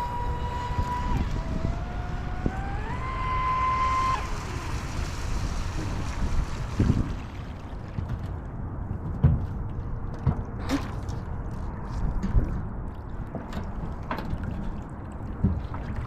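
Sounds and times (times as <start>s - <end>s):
electric boat motor whining: 0.0s - 7.1s
water noise: 0.0s - 16.0s
wind: 0.0s - 16.0s.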